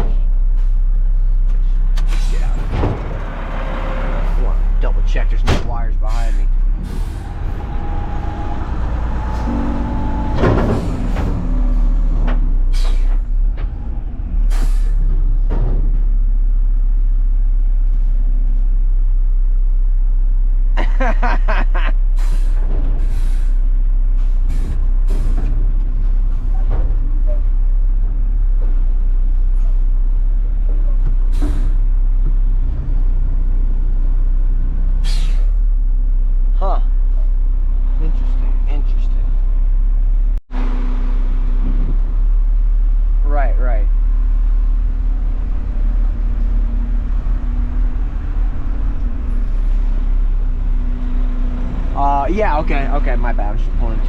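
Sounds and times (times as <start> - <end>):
garbage truck diesel engine: 0.0 - 54.0
sharp knocks and clanks: 2.0 - 3.7, 9.4 - 13.8
short hisses: 35.0 - 35.5.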